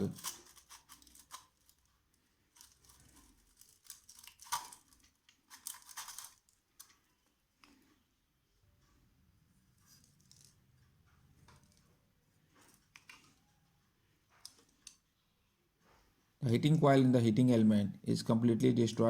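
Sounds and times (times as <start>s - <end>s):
handling clicks and scrapes: 0.0s - 8.1s, 9.7s - 13.6s.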